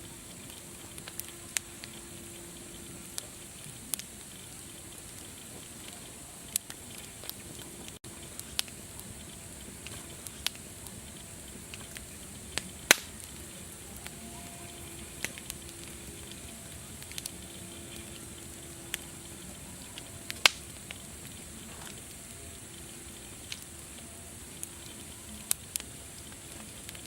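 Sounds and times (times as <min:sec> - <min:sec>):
campfire crackling: 0:00.0 - 0:27.0
loud fire pops: 0:08.4 - 0:13.4, 0:20.3 - 0:20.9.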